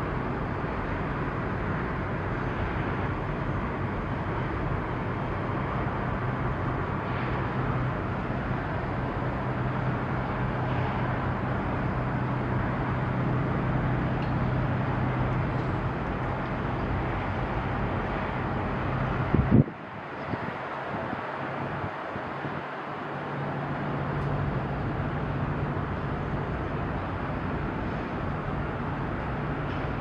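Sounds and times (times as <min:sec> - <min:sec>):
low engine drone: 0:00.0 - 0:30.0
wind noise: 0:01.6 - 0:23.0.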